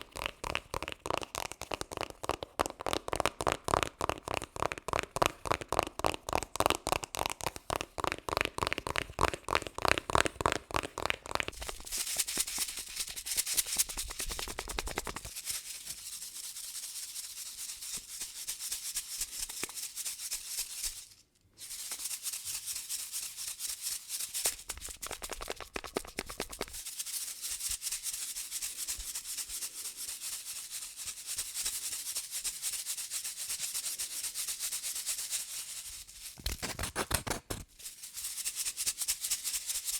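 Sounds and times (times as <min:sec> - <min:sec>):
scratching and rubbing on a surface: 0:00.0 - 0:21.0, 0:21.6 - 0:39.9.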